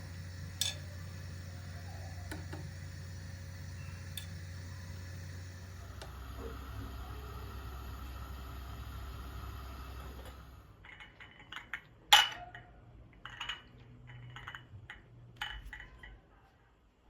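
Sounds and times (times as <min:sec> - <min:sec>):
steady noise: 0:00.0 - 0:10.6
dishes and utensils clicking: 0:00.6 - 0:00.9, 0:10.8 - 0:16.2.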